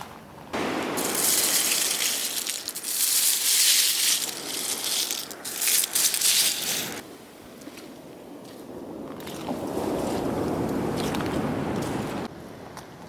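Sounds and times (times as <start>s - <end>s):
shell grit crunching and rattling: 1.0s - 7.0s.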